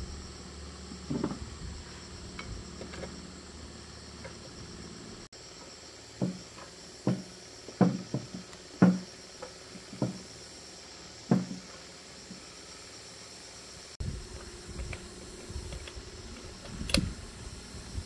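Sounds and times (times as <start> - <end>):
sharp knocks: 7.0 - 9.1, 11.3 - 11.6.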